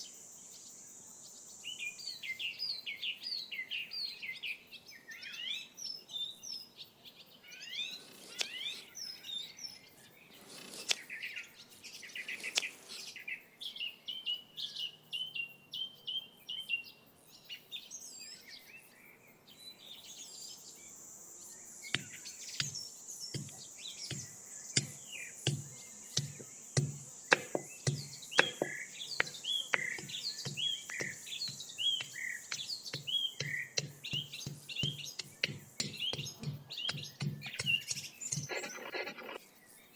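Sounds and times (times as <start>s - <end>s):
small birds chirping: 0.0s - 39.9s
steady high hiss: 20.6s - 39.3s
sharp knocks: 22.0s - 38.6s.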